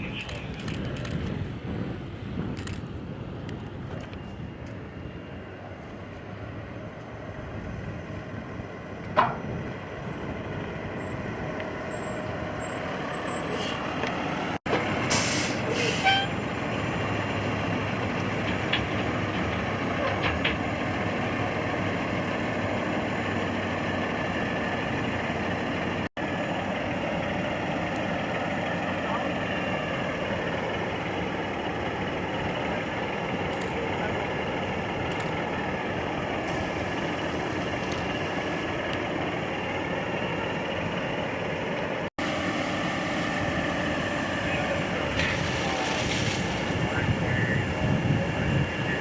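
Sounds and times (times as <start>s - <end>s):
heavy truck engine running: 0.0s - 49.0s
air brake hiss: 15.1s - 16.3s.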